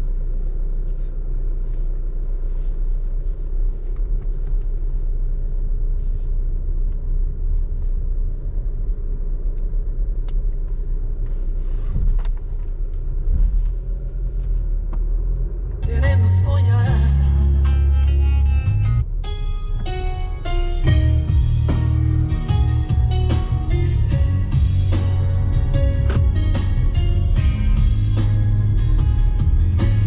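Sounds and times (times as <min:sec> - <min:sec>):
pickup truck driving rumble: 0:00.0 - 0:30.0
music with heavy beat: 0:20.4 - 0:30.0.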